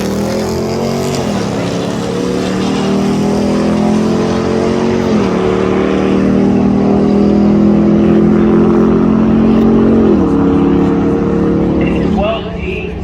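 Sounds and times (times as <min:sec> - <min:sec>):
car engine at full throttle: 0:00.0 - 0:13.0.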